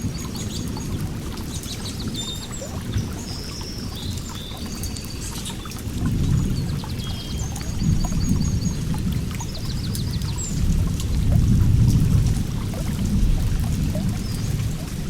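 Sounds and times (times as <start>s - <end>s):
small birds chirping: 0.0s - 10.9s
water rushing: 0.0s - 15.0s.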